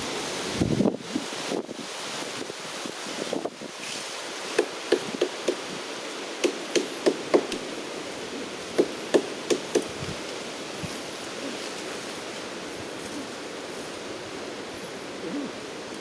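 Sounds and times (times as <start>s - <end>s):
sharp chopping strikes with hollow ring: 8.8s - 10.0s.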